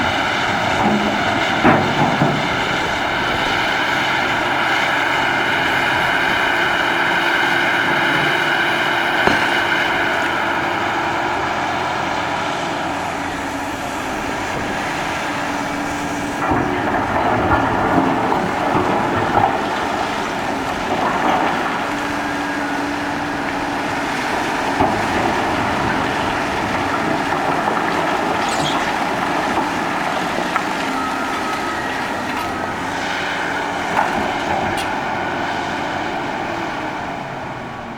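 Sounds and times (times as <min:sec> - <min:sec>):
mining shovel engine running: 0:00.0 - 0:37.9
sharp knocks and clanks: 0:00.6 - 0:04.1, 0:07.9 - 0:10.6, 0:24.1 - 0:33.0.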